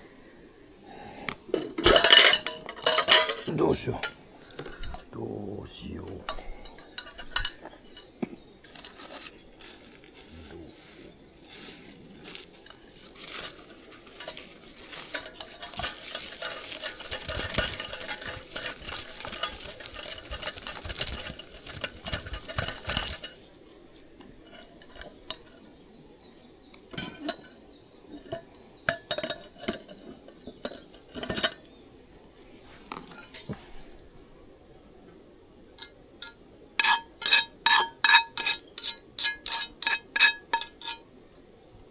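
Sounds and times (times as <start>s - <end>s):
cookware and utensils clattering: 1.5s - 5.2s, 6.0s - 9.4s, 12.5s - 23.5s, 24.3s - 26.2s, 26.8s - 31.8s, 33.0s - 33.6s, 35.8s - 41.0s.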